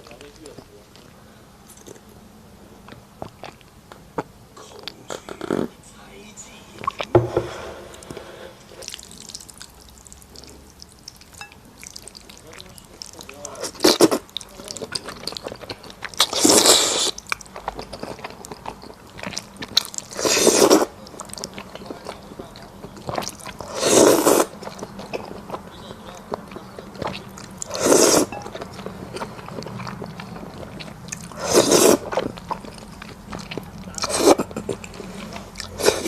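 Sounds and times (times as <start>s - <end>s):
chewing with wet clicks: 0.0s - 2.2s, 2.8s - 5.7s, 6.8s - 7.1s, 8.8s - 36.0s
noisy mouthfuls: 4.6s - 5.8s, 16.2s - 36.0s.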